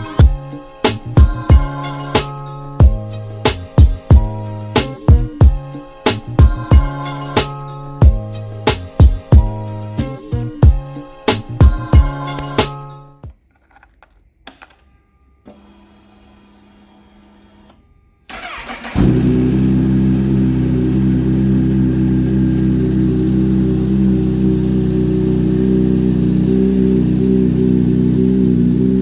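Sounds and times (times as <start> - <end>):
motorcycle starter cranking: 15.5 - 22.1
motorcycle engine idling: 18.3 - 29.0.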